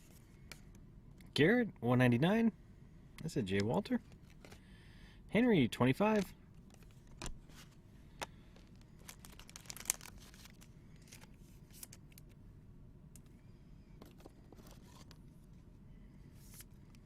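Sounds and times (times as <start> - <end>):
wrapper crinkling and tearing: 8.9 - 12.0.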